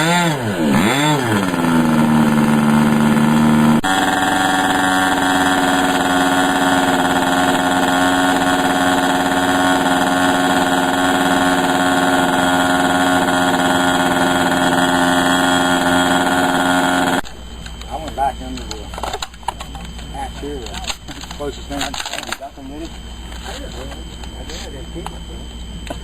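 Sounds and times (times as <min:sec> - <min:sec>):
model airplane motor running: 0:00.0 - 0:17.2.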